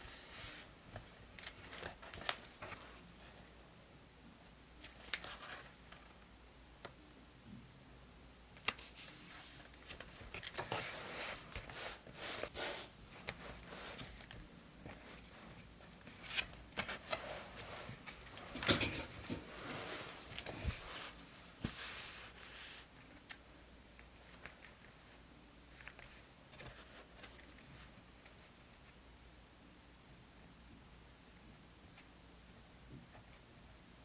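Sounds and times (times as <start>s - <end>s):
paper rustling and crinkling: 0.2s - 3.5s, 4.8s - 6.2s, 8.6s - 23.4s, 25.7s - 28.5s.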